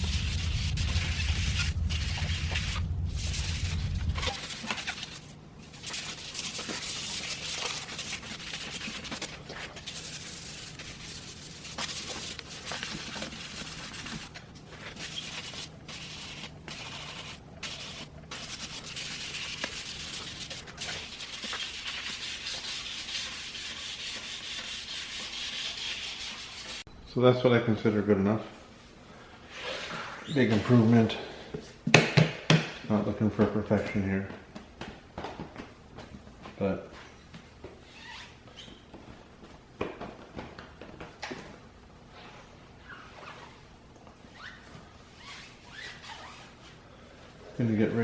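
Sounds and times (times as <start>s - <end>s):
loud low hum: 0.0s - 5.7s
sandpaper scratching: 0.0s - 26.8s.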